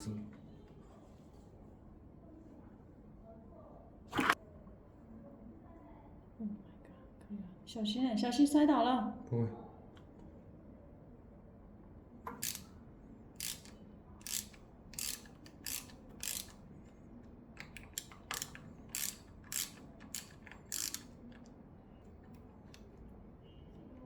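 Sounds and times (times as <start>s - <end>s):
ratchet wrench ratcheting: 12.4s - 12.7s, 13.4s - 16.6s, 17.6s - 21.2s.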